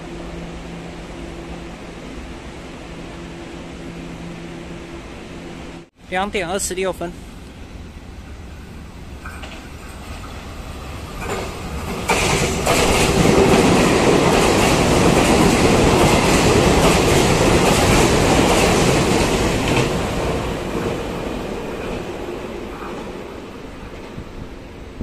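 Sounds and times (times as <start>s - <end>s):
train wheels rushing on rails: 6.6s - 25.0s.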